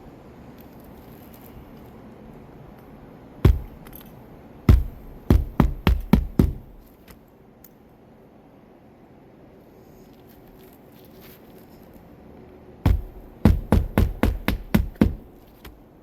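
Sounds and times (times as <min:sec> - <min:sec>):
hammer striking nail: 0:03.4 - 0:04.0, 0:04.7 - 0:06.9, 0:12.9 - 0:15.3.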